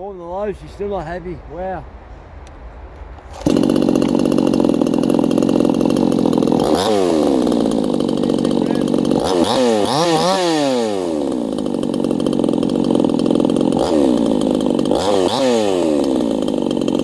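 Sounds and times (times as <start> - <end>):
chainsaw engine running: 3.3 - 17.0.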